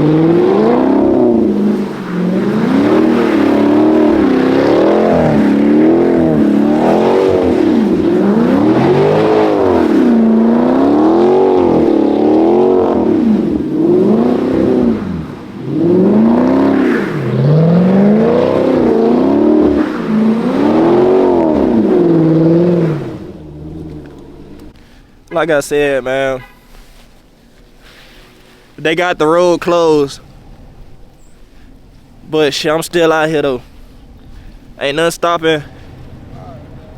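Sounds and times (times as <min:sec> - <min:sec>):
car engine revving: 0:00.0 - 0:25.5.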